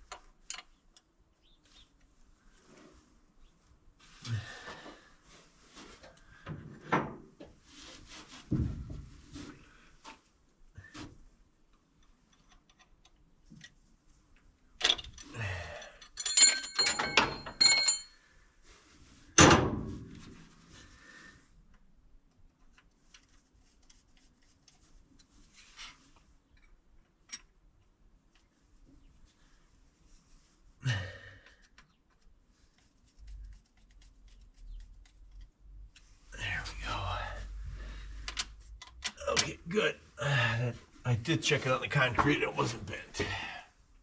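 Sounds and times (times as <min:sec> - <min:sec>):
metal clanks and thumps: 0:08.5 - 0:09.2, 0:16.2 - 0:18.0
ringing metallic clinks: 0:16.0 - 0:18.3.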